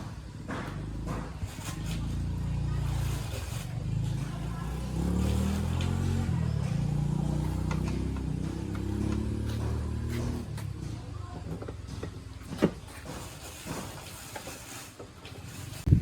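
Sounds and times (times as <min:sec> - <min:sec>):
motorbike engine revving: 0:00.0 - 0:12.6.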